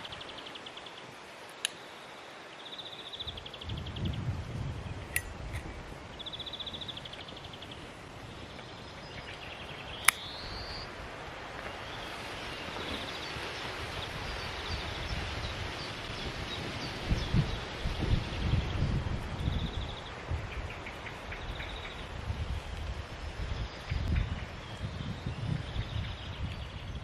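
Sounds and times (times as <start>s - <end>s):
rustling hiss: 0.0s - 27.0s
sharp click: 5.1s - 5.7s, 10.0s - 10.4s.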